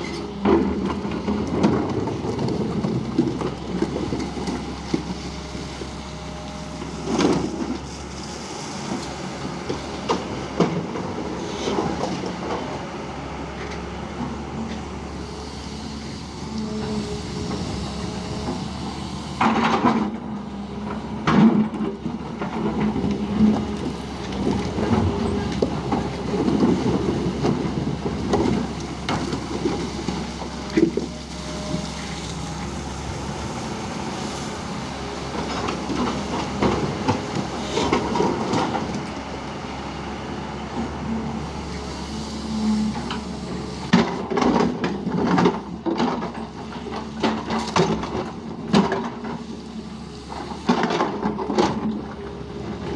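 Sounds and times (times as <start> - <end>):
diesel engine running under load: 0.0 - 52.9
bucket and arm clanking: 16.2 - 39.4.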